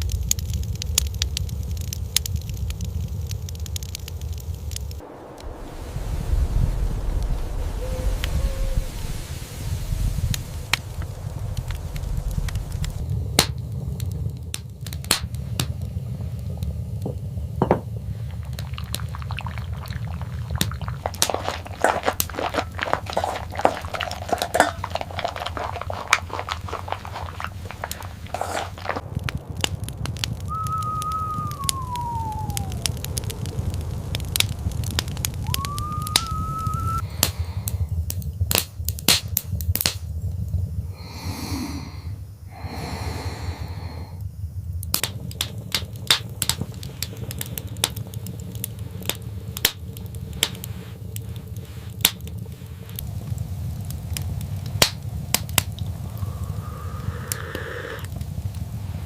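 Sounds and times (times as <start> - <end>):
small clicks and crackles: 0.0 - 5.0, 10.3 - 17.4, 18.1 - 40.1, 44.8 - 59.0
steady low rumble: 0.0 - 41.2, 43.5 - 59.0
drawn-out whine-like tones: 4.7 - 13.9, 53.0 - 59.0.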